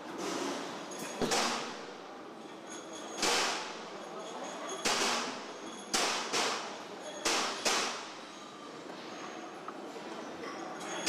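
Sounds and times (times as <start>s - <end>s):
steady factory background: 0.0s - 11.0s
sharp metallic knocks: 4.8s - 8.1s.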